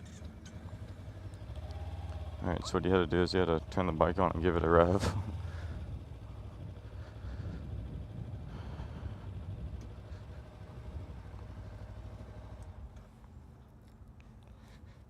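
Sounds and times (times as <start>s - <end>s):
motorcycle engine idling: 0.0s - 13.8s.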